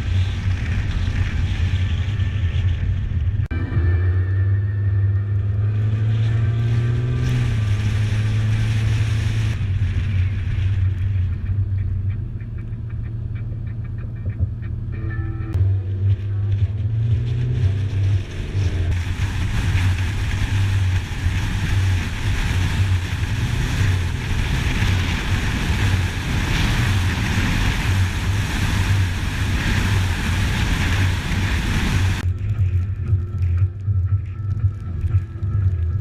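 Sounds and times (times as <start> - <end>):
wind rushing on microphone: 0.0 - 3.5, 16.2 - 36.0
low hum: 0.0 - 36.0.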